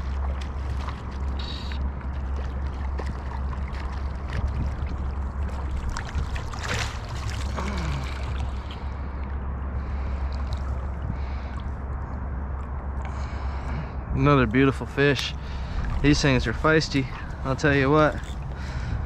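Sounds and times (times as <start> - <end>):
fish splashing in water: 0.0 - 11.9
low rumble: 0.0 - 19.0.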